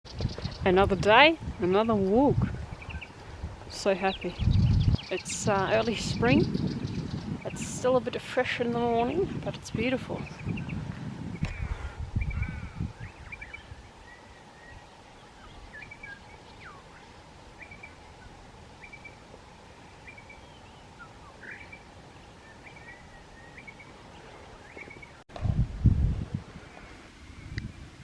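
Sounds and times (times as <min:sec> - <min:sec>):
birds chirping: 0:00.1 - 0:25.2
bird gliding whistles: 0:19.9 - 0:23.9.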